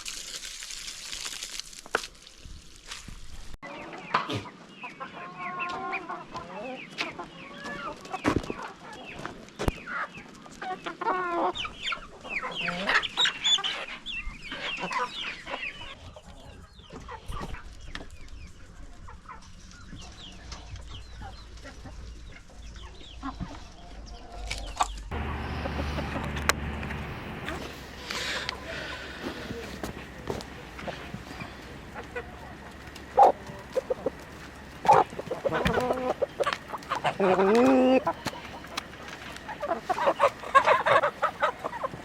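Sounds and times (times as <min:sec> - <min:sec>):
chickens clucking: 0:03.6 - 0:42.0.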